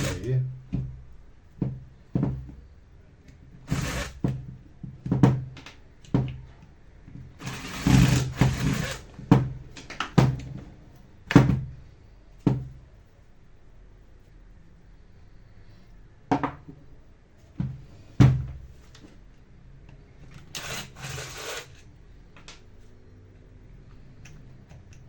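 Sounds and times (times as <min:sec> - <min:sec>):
noisy bursts: 0:00.0 - 0:00.4.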